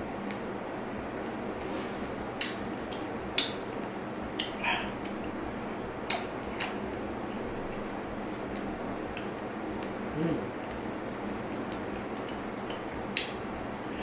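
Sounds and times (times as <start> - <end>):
wet chewing sounds: 2.4 - 7.9.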